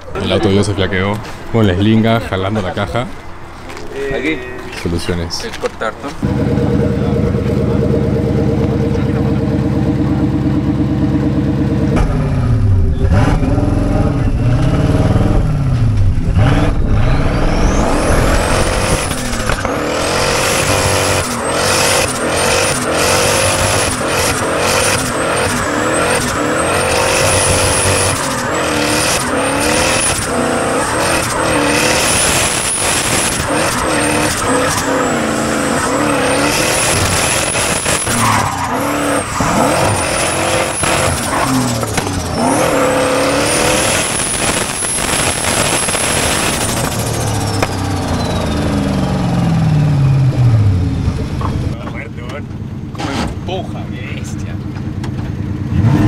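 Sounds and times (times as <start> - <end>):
car engine revving: 6.0 - 56.0.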